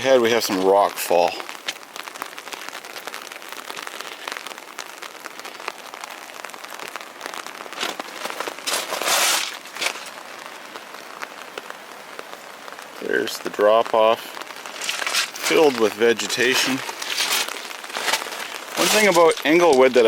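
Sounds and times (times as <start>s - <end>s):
rain pattering close: 0.0s - 20.0s
hissing crunch: 7.6s - 20.0s.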